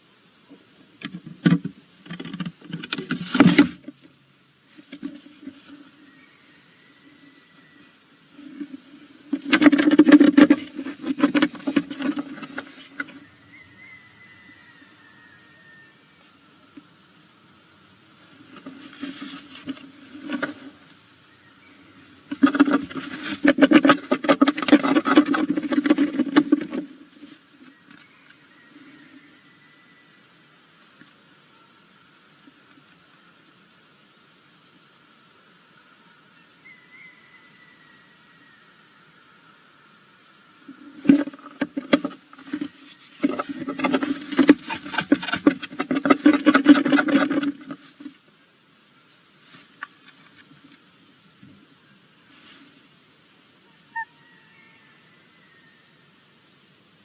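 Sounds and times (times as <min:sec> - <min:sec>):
faint hiss: 0:00.0 - 0:57.0
owl scratching in wooden nestbox: 0:08.4 - 0:14.6, 0:18.3 - 0:20.9, 0:22.2 - 0:28.3, 0:40.7 - 0:48.2.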